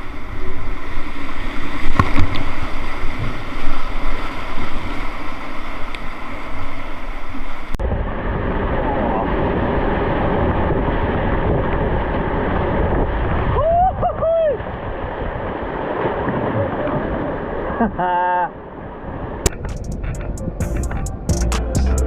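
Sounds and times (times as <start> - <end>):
river water flowing: 0.0 - 7.8
wind buffeting microphone: 7.8 - 17.6, 18.8 - 21.3.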